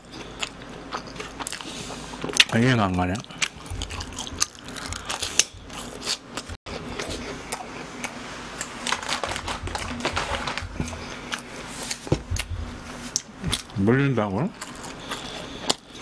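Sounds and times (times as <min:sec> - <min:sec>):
chewing crunchy food: 0:00.0 - 0:12.5, 0:14.5 - 0:16.0
paper napkin rustling: 0:08.8 - 0:13.2.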